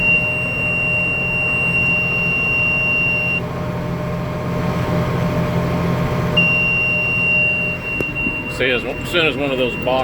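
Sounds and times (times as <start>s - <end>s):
high alarm tone: 0.0s - 3.4s, 6.4s - 10.0s
tractor engine drone: 0.0s - 10.0s.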